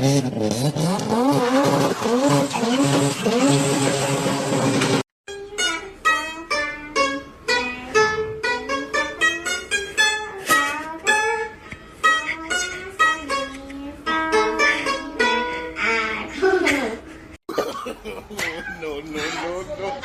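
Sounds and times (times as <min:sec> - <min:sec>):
plucked string instrument melody: 0:05.3 - 0:16.2.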